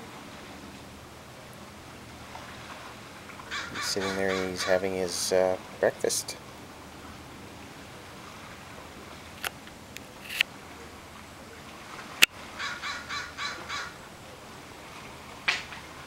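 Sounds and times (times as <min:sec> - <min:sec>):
harsh bird calls: 0:03.5 - 0:04.8, 0:12.6 - 0:14.0.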